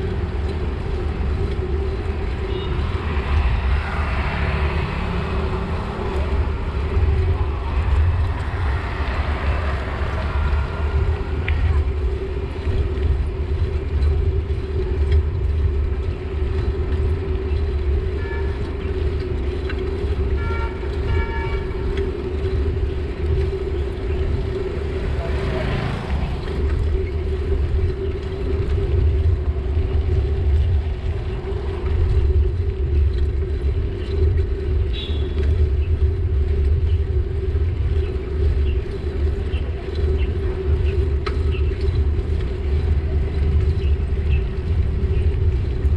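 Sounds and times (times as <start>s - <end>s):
road traffic rumble: 0.0s - 45.9s
vehicle passing close: 2.1s - 13.1s
vehicle horn tooting: 20.3s - 21.8s.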